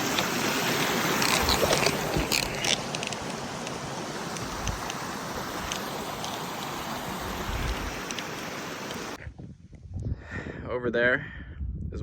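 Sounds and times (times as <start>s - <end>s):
mountain stream rushing: 0.0s - 9.2s.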